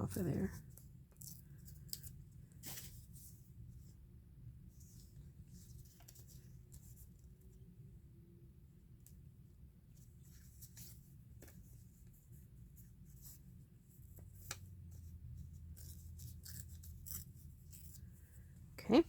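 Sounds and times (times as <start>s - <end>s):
low steady hum: 0.0s - 19.0s
paper rustling and scraping: 1.2s - 3.4s, 10.1s - 18.3s.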